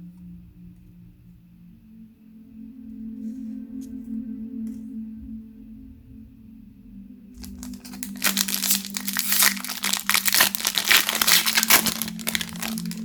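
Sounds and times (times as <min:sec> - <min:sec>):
low ambient music drone: 0:00.0 - 0:13.0
plastic wrapper crumpling: 0:07.4 - 0:13.0.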